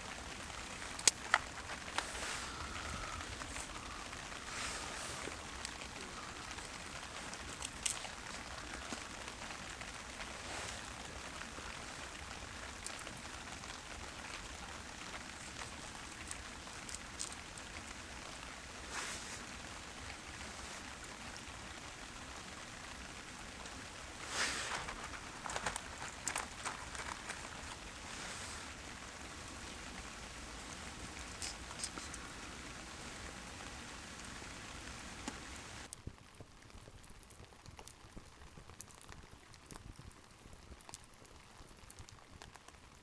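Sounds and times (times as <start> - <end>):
steady rain falling: 0.0 - 43.0.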